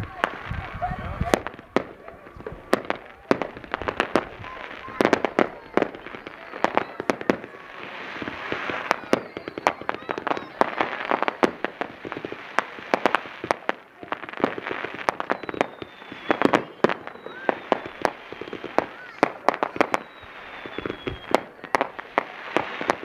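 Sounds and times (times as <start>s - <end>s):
fireworks bangs and crackles: 0.0s - 23.0s
faint falling whistle: 5.5s - 7.3s, 8.6s - 11.0s, 15.2s - 19.2s, 19.8s - 21.6s.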